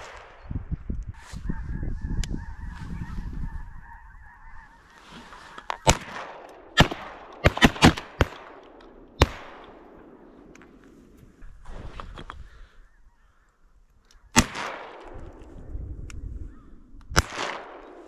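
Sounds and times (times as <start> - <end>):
geese honking: 1.5 - 6.0
shotgun blasts: 5.8 - 10.5, 14.3 - 15.2, 17.1 - 18.0.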